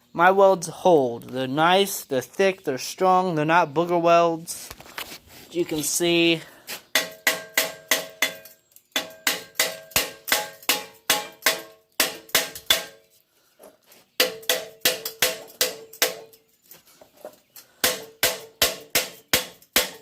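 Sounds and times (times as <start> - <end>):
chipping hammer tapping metal: 6.9 - 13.0, 14.2 - 16.4, 17.8 - 20.0.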